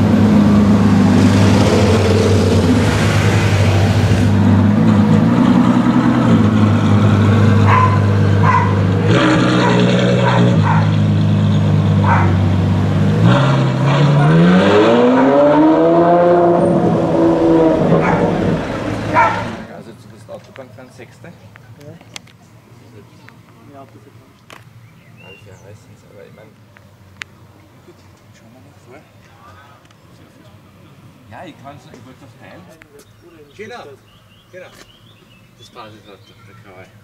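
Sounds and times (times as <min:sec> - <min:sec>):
car engine idling and revving: 0:00.0 - 0:25.0.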